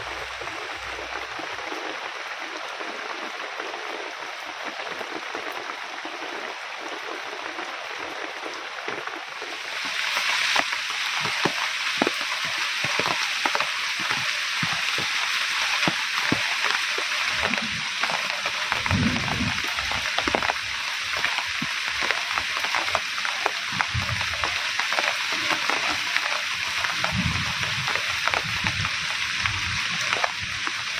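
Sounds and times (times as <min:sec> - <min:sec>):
heavy rain falling: 0:00.0 - 0:30.9
drops dripping close by: 0:08.0 - 0:30.9
low rumbles: 0:18.7 - 0:20.5.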